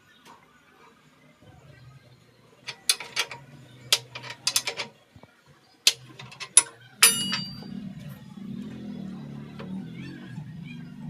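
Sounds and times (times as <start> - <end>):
low steady hum: 1.4 - 11.0
sharp clicks and knocks: 2.7 - 4.9, 5.9 - 7.7
ringing metallic clink: 5.9 - 8.1.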